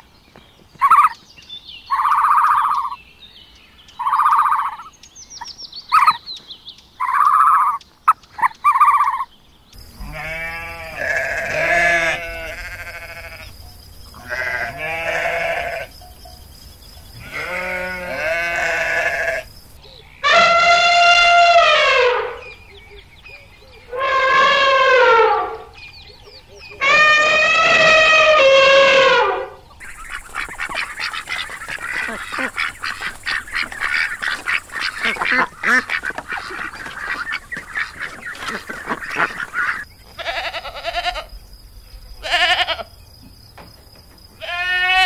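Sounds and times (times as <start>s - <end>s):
sheep bleating: 10.0s - 13.5s, 14.2s - 15.9s, 17.2s - 19.5s, 40.2s - 41.3s, 42.2s - 42.8s, 44.4s - 45.0s.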